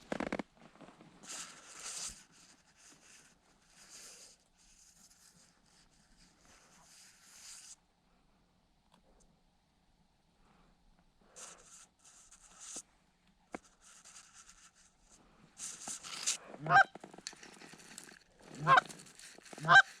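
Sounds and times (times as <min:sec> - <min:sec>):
rustling hiss: 0:01.0 - 0:07.8, 0:11.2 - 0:20.0
goose honking: 0:16.6 - 0:17.0, 0:18.6 - 0:20.0.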